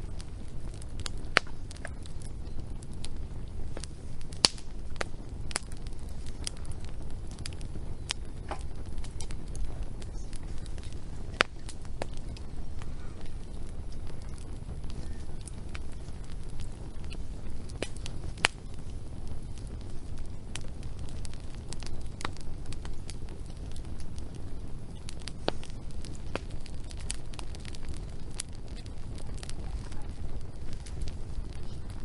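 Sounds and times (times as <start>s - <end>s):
low fire rumble: 0.0s - 32.0s
wood fire crackling: 0.0s - 32.0s.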